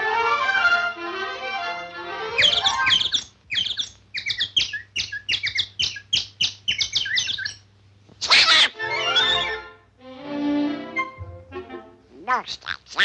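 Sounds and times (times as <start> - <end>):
orchestral cartoon music: 0.0 - 3.0, 8.7 - 12.2
cartoon bird chirping: 2.4 - 7.6, 8.2 - 9.6, 12.2 - 13.0.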